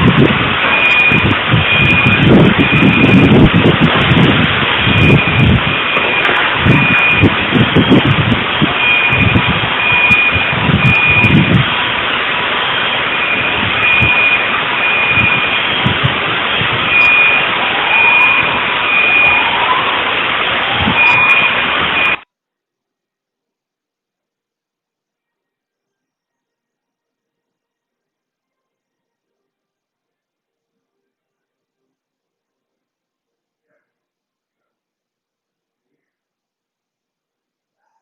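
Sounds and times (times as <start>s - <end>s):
deep rumbling gusts: 0.0s - 22.2s
loud rushing noise: 0.0s - 22.2s
electronic alarm beeping: 0.0s - 22.3s.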